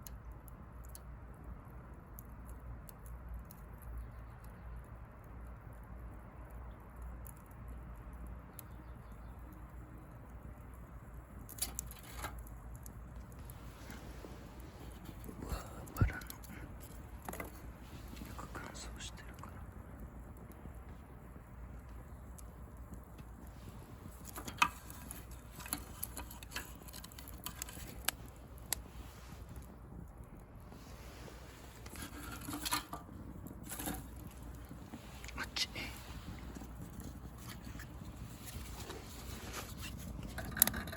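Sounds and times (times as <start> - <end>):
bonfire burning and crackling: 0.0 - 40.9
low rumble of flames: 0.0 - 40.9
sharp pops of fire: 10.1 - 40.9.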